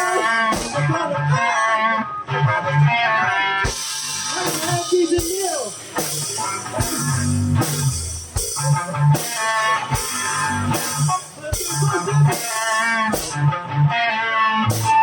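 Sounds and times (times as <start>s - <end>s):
drum kit beat: 0.0s - 1.0s, 3.6s - 13.5s, 14.7s - 15.0s
bass guitar: 0.0s - 15.0s
electric guitar melody: 0.0s - 15.0s.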